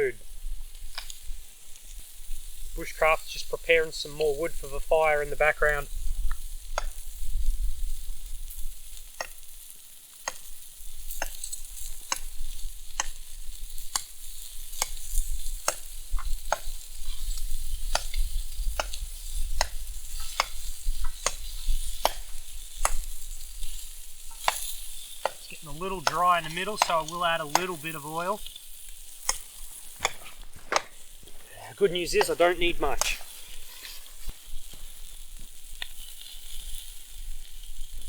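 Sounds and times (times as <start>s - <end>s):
food sizzling on a hotplate: 0.0s - 38.0s
wind rumbling on microphone: 5.8s - 8.8s
sharp knocks of firewood: 17.9s - 23.2s, 24.3s - 25.4s, 29.2s - 31.4s.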